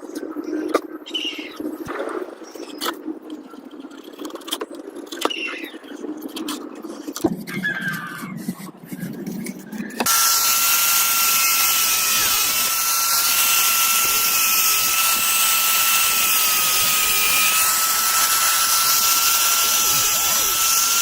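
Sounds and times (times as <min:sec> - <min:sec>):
electric power tool whining: 0:10.0 - 0:21.0.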